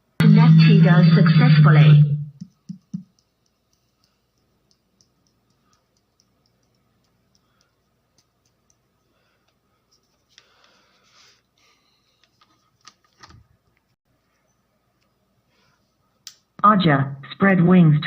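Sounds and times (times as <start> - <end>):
faint sharp clicks and ticks: 2.4 - 10.8.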